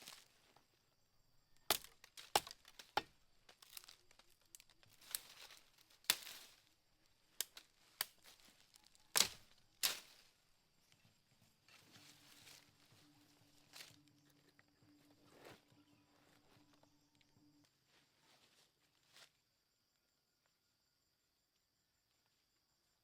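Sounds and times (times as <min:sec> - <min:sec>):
dry sticks snapping: 0:01.6 - 0:06.6, 0:07.3 - 0:10.2.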